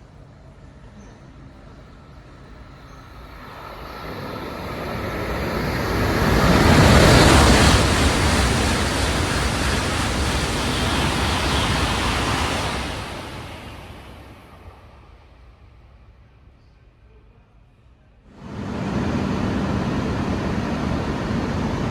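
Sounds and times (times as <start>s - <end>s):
high-speed train rushing past: 0.0s - 16.4s, 18.3s - 21.9s.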